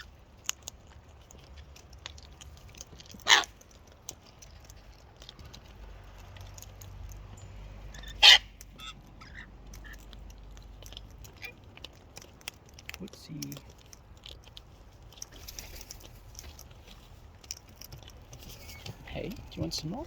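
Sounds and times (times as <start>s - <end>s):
cockatoo screeches: 3.2s - 3.5s, 7.9s - 10.0s.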